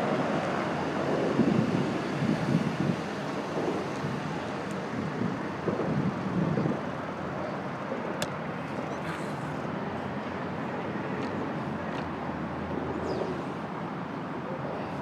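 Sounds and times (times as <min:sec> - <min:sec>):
wind buffeting microphone: 0:00.0 - 0:08.8
bicycle road rumble: 0:00.0 - 0:15.0
city traffic: 0:00.0 - 0:15.0.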